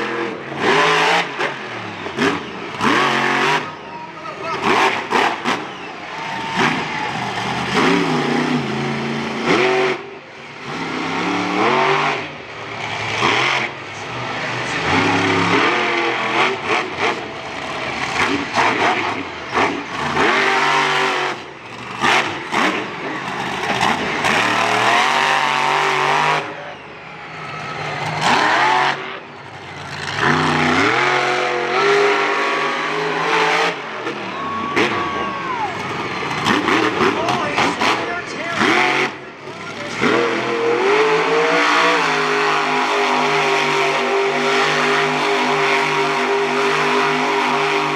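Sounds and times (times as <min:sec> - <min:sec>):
truck engine revving: 0:00.0 - 0:47.9.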